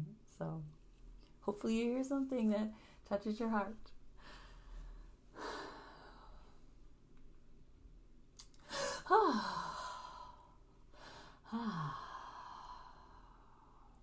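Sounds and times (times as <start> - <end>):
person breathing deeply and sighing: 4.2 - 6.7, 8.6 - 14.0.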